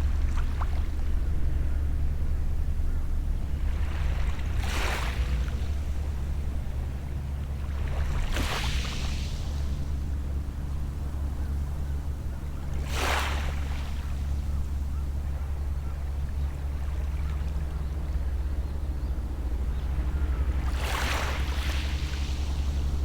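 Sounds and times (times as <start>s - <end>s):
distant boat engine drone: 0.0s - 23.0s
small waves washing onto shore: 3.5s - 10.1s, 20.6s - 23.0s.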